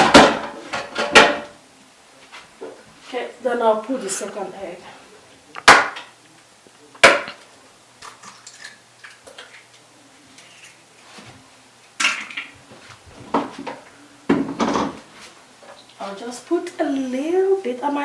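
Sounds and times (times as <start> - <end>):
kitchenware clinking and clattering: 0.0 - 1.5, 12.0 - 12.6, 13.4 - 15.0.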